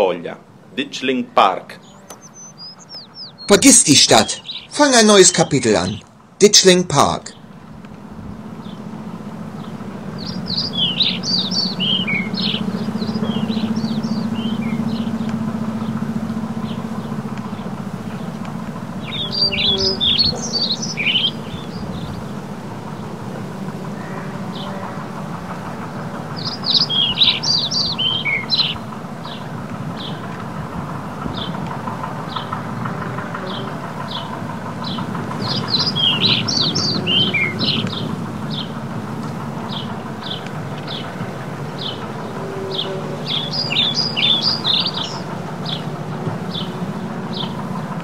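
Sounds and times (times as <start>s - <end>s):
low background rumble: 0.3s - 6.4s, 7.2s - 48.0s
small songbird chirping: 1.8s - 6.0s, 9.5s - 22.4s, 26.3s - 30.4s, 33.4s - 38.8s, 39.7s - 47.7s.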